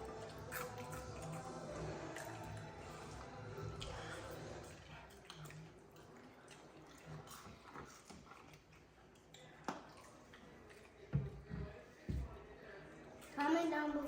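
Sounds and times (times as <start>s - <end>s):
chewing clicks: 0.0s - 10.9s.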